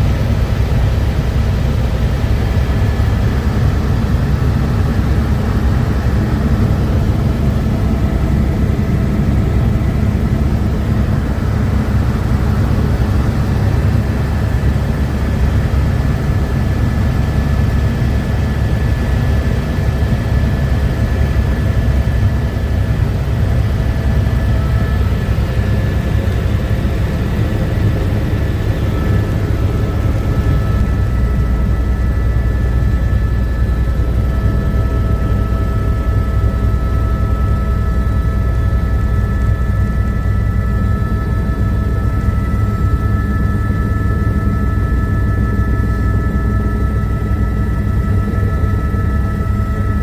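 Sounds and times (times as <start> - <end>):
helicopter drone: 0.0 - 50.0
faint whining tones: 21.2 - 50.0.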